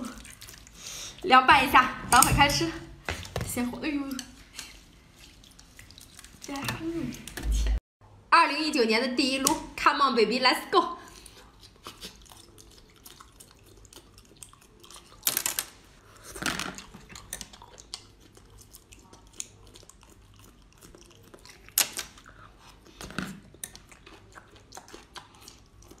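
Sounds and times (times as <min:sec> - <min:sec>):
chewing crunchy crabs: 0:00.0 - 0:01.3, 0:04.4 - 0:07.4, 0:11.0 - 0:26.0.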